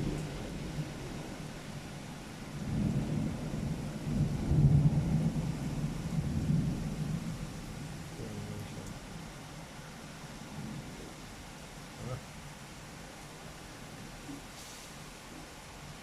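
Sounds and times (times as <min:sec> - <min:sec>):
thunder rumbling: 0:00.0 - 0:08.8
rain hissing: 0:00.0 - 0:16.0.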